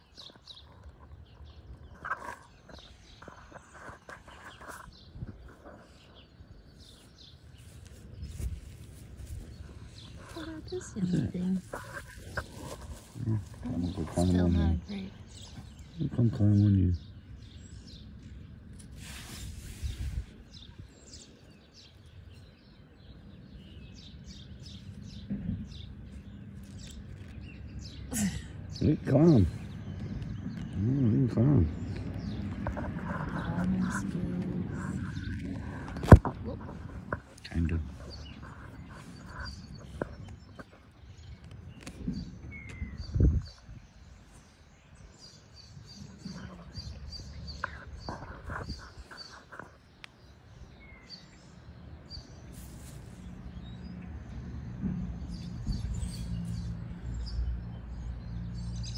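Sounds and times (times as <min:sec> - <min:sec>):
low rumble on the microphone: 0:00.0 - 0:58.9
low wind: 0:00.0 - 0:58.9
small birds chirping: 0:00.0 - 0:58.9
microphone handling rumble: 0:29.5 - 0:44.2, 0:45.9 - 0:49.9.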